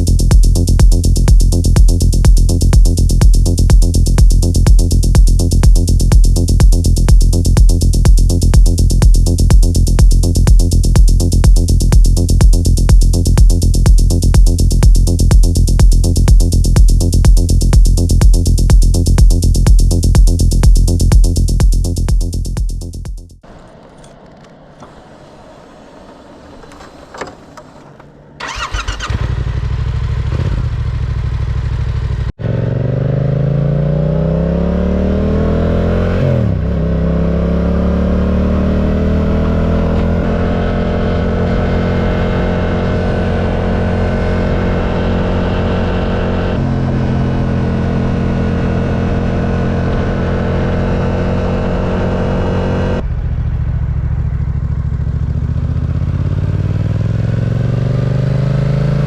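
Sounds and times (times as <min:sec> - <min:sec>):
motorcycle engine idling: 0:00.0 - 0:32.4, 0:53.0 - 0:56.9.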